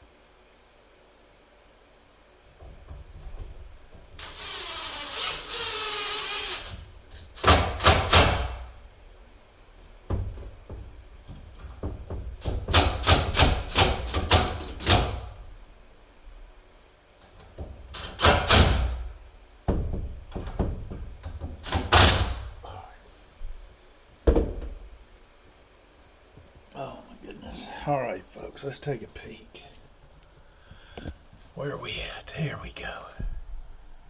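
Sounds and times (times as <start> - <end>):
power drill driving screws into wood: 4.2 - 8.7.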